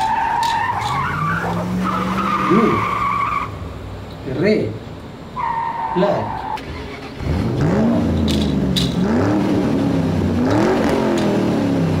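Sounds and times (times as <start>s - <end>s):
car engine revving: 0.0s - 3.8s, 6.6s - 12.0s.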